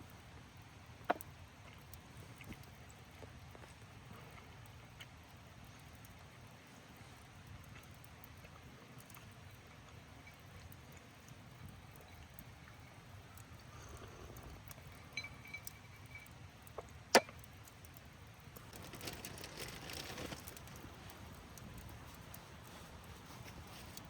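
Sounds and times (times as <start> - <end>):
campfire crackling and popping: 0.0 - 24.0
short rustle: 18.6 - 24.0.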